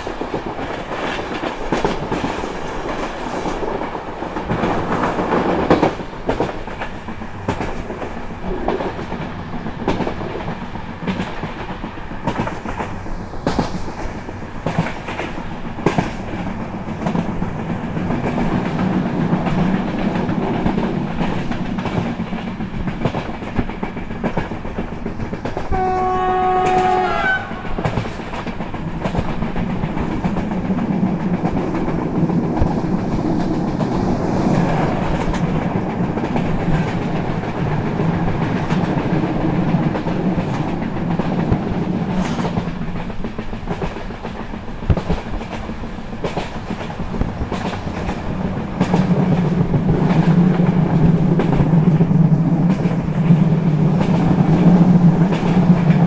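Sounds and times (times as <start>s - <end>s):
rail clicks: 0.0s - 56.0s
train wheels rumbling on track: 0.0s - 56.0s
train horn blast: 25.7s - 28.0s.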